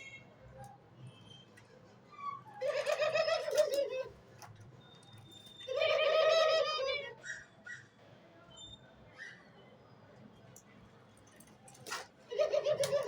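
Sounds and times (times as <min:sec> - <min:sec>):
dove cooing: 0:12.3 - 0:13.0.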